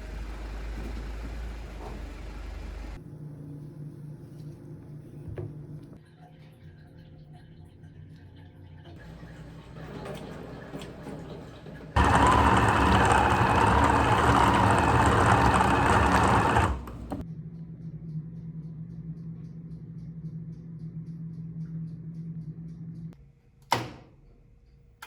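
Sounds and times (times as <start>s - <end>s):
electric motor running loudly: 12.0s - 17.2s.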